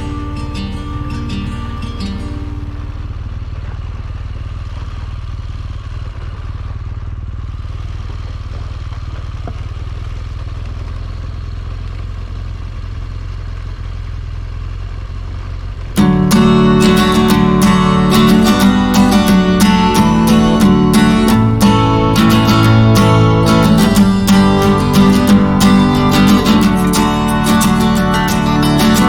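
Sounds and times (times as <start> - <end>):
motorcycle engine running: 0.0 - 29.0
steady rush of noise: 15.9 - 29.0.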